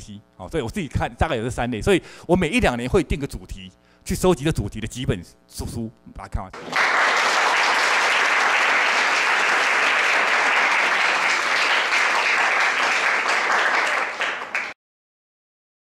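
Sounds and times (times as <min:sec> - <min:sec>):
audience applauding: 0:06.6 - 0:14.8.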